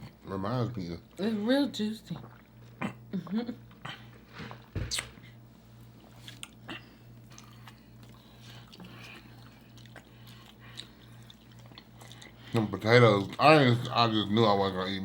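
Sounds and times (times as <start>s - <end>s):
faint low hum: 0.0s - 15.0s
chewing and biting food: 3.6s - 14.2s.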